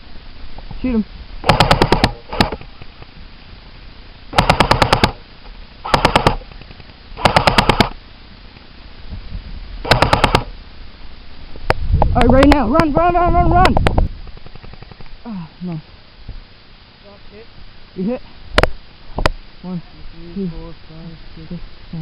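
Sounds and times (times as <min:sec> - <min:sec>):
airsoft rifle full-auto bursts: 0:01.4 - 0:02.6, 0:04.3 - 0:05.2, 0:05.8 - 0:06.4, 0:07.2 - 0:08.0, 0:09.8 - 0:10.5.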